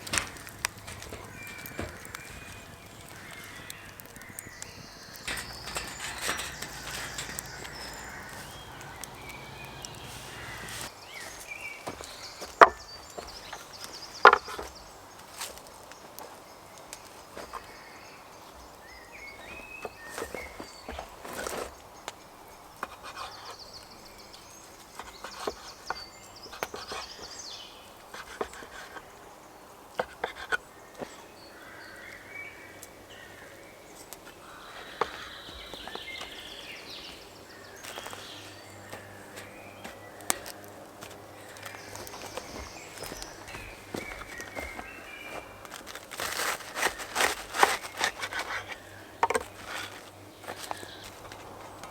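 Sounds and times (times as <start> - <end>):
small knocks and clicks: 0.0 - 10.9
bird chirps: 0.0 - 11.3.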